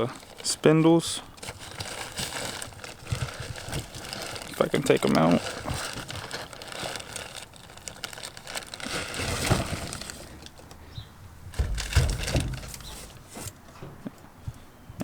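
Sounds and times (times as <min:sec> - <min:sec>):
packaging rustling and clicks: 0:00.0 - 0:00.6, 0:01.2 - 0:10.8, 0:11.5 - 0:13.6
heavy thuds: 0:11.4 - 0:14.0.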